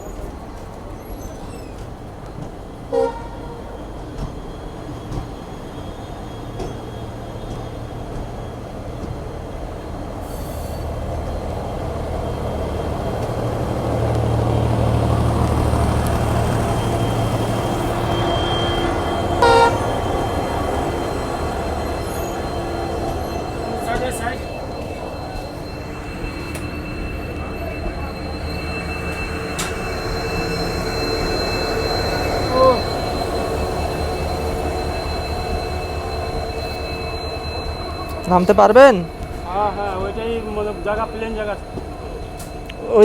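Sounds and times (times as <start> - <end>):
train running on rails: 0.0 - 43.0
train horn toot: 2.9 - 3.8, 16.9 - 22.6.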